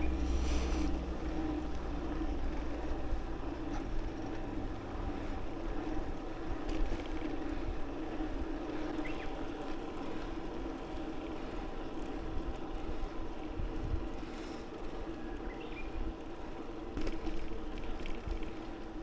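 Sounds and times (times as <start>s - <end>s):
low drone: 0.0s - 2.2s
bicycle road rumble: 0.0s - 19.0s.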